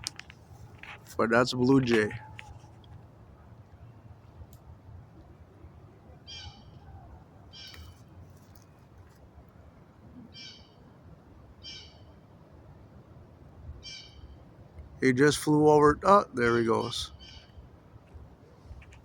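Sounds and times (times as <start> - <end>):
blue jay calling: 6.2 - 8.2, 10.2 - 11.0, 11.6 - 12.2, 13.8 - 14.5, 16.4 - 17.6.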